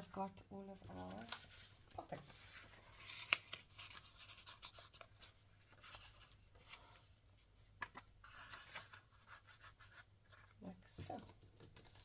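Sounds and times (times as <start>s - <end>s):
paper rustling and tapping: 3.0s - 6.9s, 7.7s - 9.0s, 10.3s - 12.0s.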